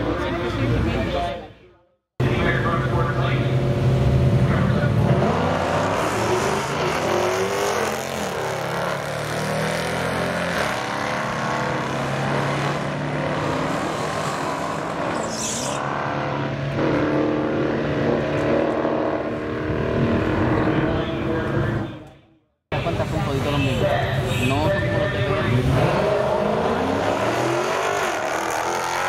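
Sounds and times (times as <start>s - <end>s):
race car engines revving: 2.2s - 22.1s, 22.7s - 29.0s.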